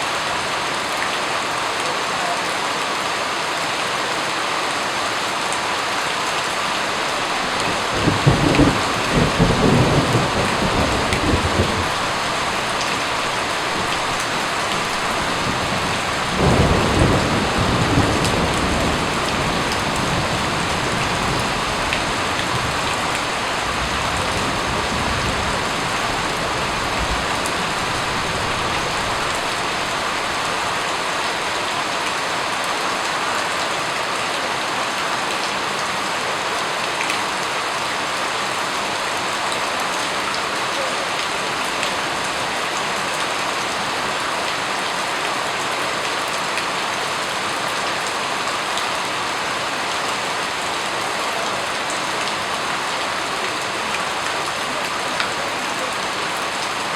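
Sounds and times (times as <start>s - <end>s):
steady rain falling: 0.0s - 56.9s
low rolls of thunder: 7.2s - 30.4s.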